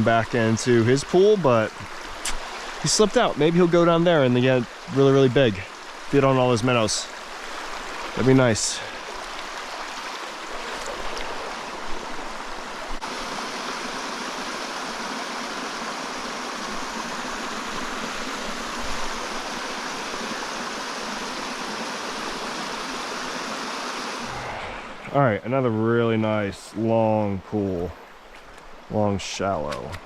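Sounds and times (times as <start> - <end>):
mountain stream rushing: 0.0 - 30.0.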